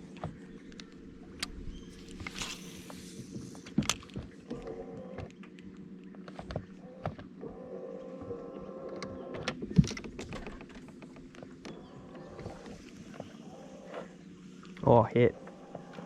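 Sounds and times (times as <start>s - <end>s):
electric trolling motor whine: 0.0s - 16.0s
knocks and taps on hull: 9.3s - 13.4s.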